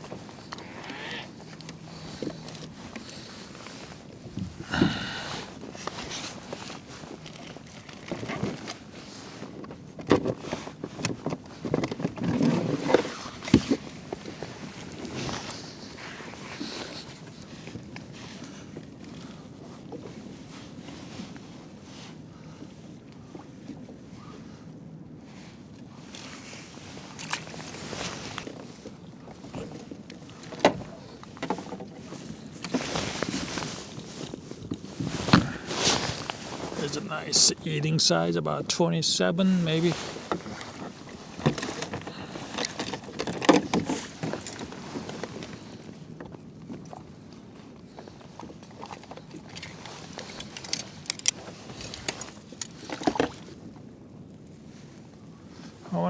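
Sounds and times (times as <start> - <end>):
handling noises on a kayak: 0.0 - 36.8, 39.9 - 55.8
fishing gear knocks and clicks: 49.4 - 53.4.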